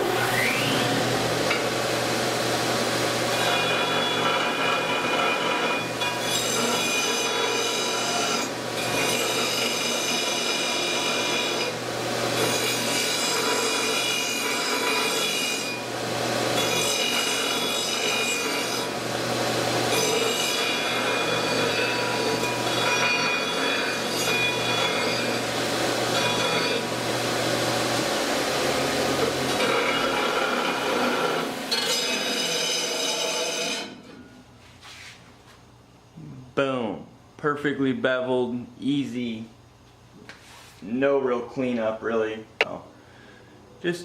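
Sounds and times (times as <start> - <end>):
steel tube grinding on sander disc: 0.0 - 34.1.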